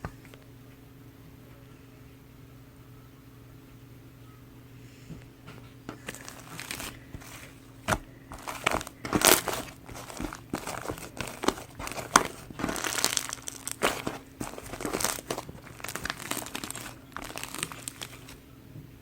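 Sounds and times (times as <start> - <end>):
slime squished by hand: 5.9 - 18.4.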